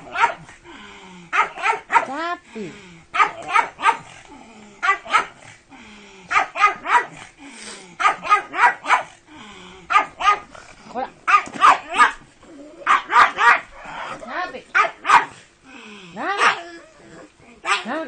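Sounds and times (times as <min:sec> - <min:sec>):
dog barking: 0:00.0 - 0:00.5, 0:01.3 - 0:02.1, 0:03.2 - 0:04.1, 0:04.8 - 0:05.4, 0:06.3 - 0:07.2, 0:08.0 - 0:09.2, 0:09.9 - 0:10.5, 0:11.3 - 0:12.2, 0:12.8 - 0:13.7, 0:14.7 - 0:15.4, 0:16.3 - 0:16.6, 0:17.6 - 0:18.0.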